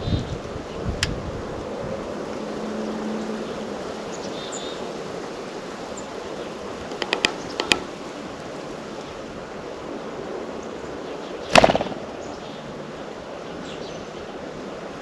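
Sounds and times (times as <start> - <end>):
steady outdoor hiss: 0.0 - 15.0
short rattling burst: 11.5 - 12.3
sharp taps: 11.6 - 12.1.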